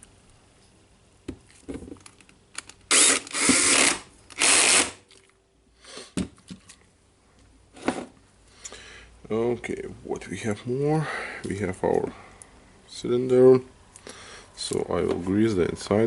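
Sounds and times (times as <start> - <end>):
parts clicking and knocking: 1.3 - 3.6
screw being driven: 2.9 - 5.0.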